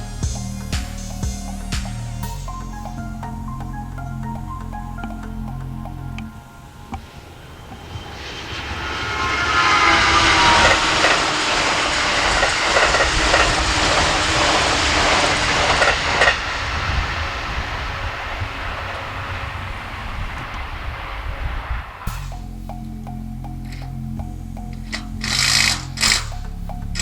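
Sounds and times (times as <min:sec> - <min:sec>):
whining tones sliding down: 0:00.0 - 0:27.0
train passing at speed: 0:06.3 - 0:22.2.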